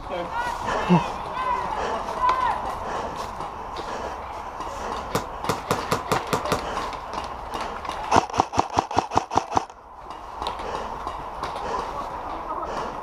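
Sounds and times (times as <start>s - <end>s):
airsoft gun firing: 5.2s - 6.6s, 8.1s - 9.7s.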